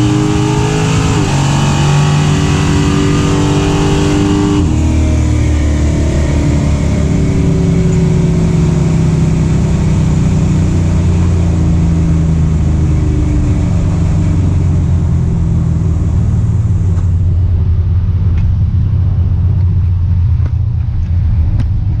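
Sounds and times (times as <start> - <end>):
truck engine rumbling: 0.0 - 22.0.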